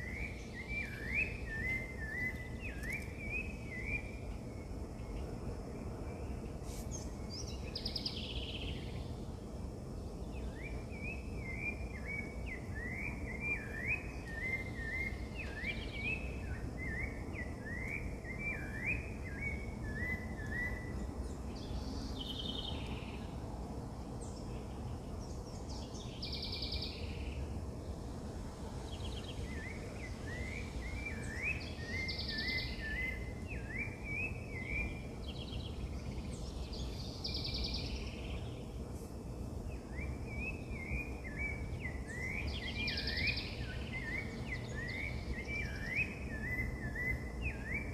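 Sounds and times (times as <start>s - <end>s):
low background noise: 0.0s - 47.9s
wild birds calling: 28.8s - 38.7s.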